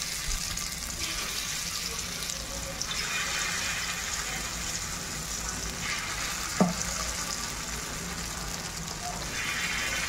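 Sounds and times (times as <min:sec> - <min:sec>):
food sizzling in hot oil: 0:00.0 - 0:10.0
sharp knock in pan: 0:06.6 - 0:06.9.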